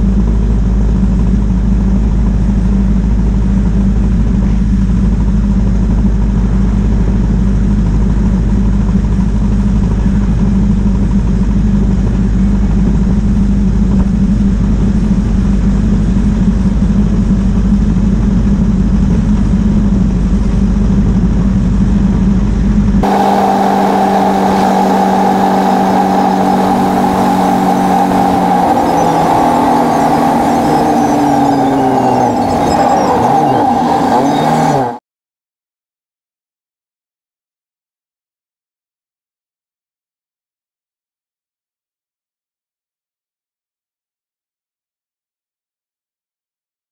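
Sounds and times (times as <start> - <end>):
car engine running: 0.0 - 35.0
steady whine: 0.0 - 35.0
wind and road noise: 0.0 - 35.0.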